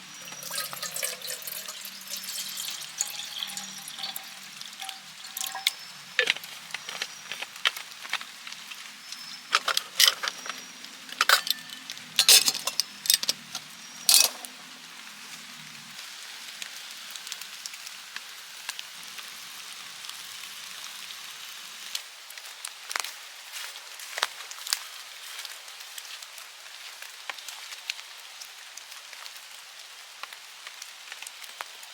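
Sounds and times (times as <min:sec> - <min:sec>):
sharp clinks and knocks: 0:00.2 - 0:07.2, 0:11.1 - 0:14.5.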